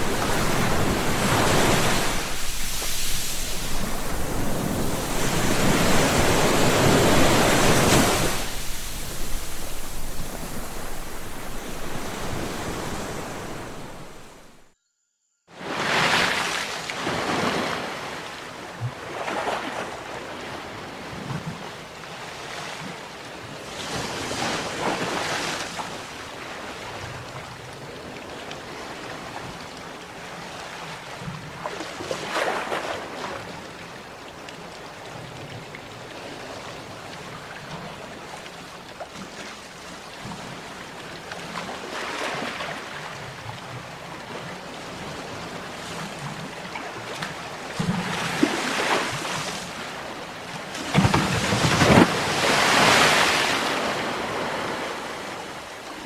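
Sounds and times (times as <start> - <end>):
surf hiss: 0.0 - 14.7, 50.8 - 56.0
wave crashes: 0.0 - 14.7.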